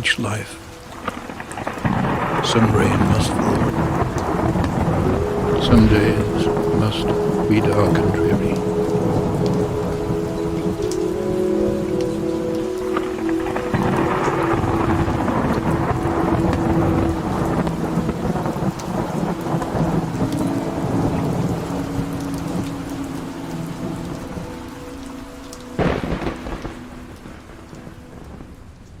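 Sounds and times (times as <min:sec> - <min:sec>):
faint held musical tones: 0:00.0 - 0:28.7
heavy rain: 0:00.0 - 0:29.0
rolling thunder: 0:01.0 - 0:29.0
sharp thunderclap: 0:01.6 - 0:07.5.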